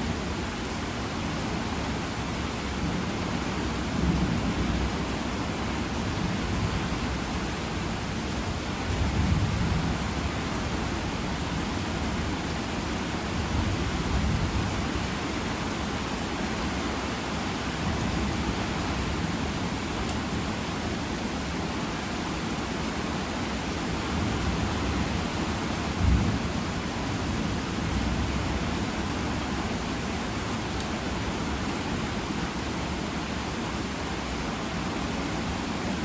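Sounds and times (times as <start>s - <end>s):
heavy rain falling: 0.0s - 36.0s
thunder rumbling: 25.8s - 28.8s.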